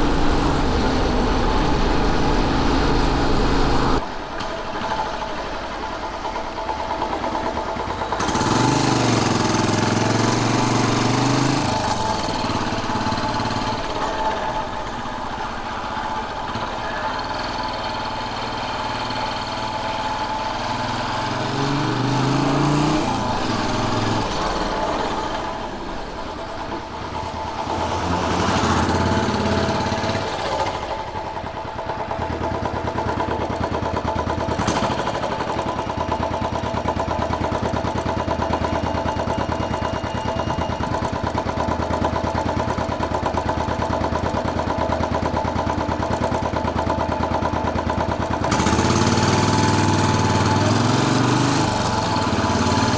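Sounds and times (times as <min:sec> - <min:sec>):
wind rush: 0:00.0 - 0:04.0
motorcycle engine accelerating: 0:00.0 - 0:52.9.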